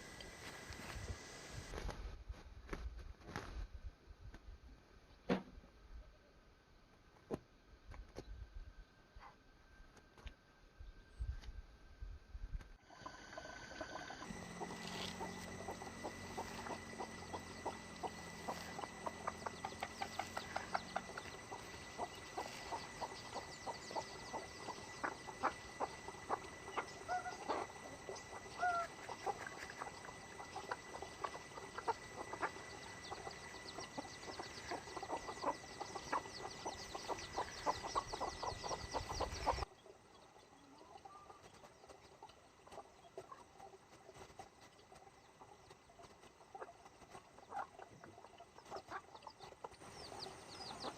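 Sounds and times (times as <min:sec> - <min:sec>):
chickens clucking: 0:13.0 - 0:50.9.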